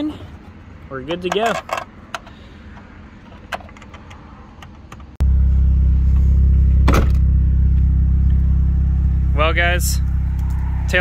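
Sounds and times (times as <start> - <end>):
car engine idling: 1.7 - 11.0.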